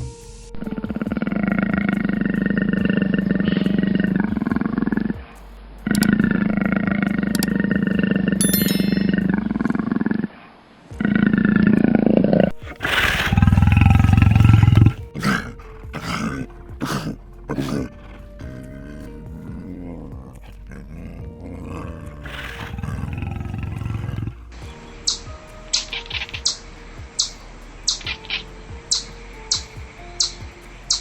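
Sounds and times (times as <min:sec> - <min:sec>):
animal deep roaring calls: 0:11.0 - 0:24.5.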